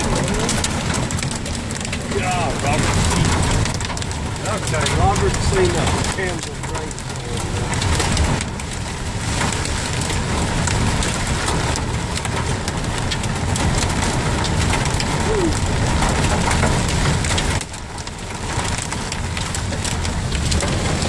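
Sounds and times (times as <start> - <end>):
hailstones striking: 0.0 - 21.0
heavy rain downpour: 0.0 - 21.0.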